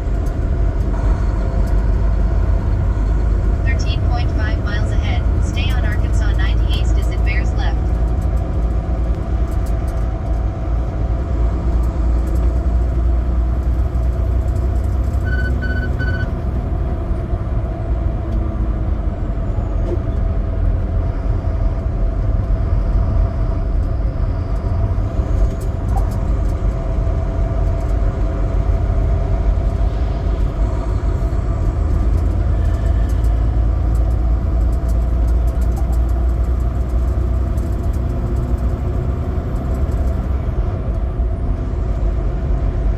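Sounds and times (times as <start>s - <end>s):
truck diesel engine running: 0.0s - 42.9s
short high beeps: 15.2s - 16.3s.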